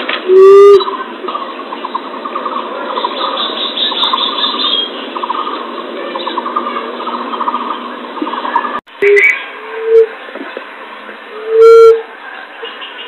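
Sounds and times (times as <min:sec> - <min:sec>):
bird chattering: 0:00.8 - 0:09.8
birds trilling: 0:00.8 - 0:10.7.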